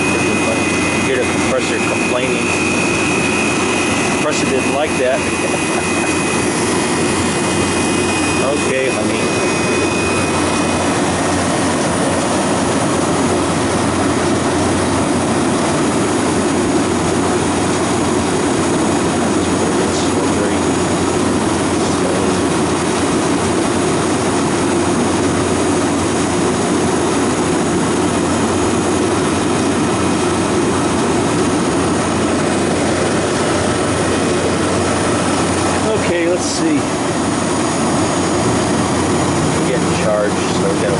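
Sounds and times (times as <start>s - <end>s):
refrigeration unit running: 0.0s - 40.9s.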